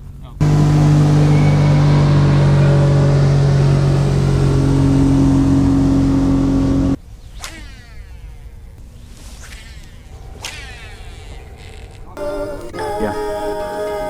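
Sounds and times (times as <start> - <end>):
motorboat engine drone: 0.4 - 7.0.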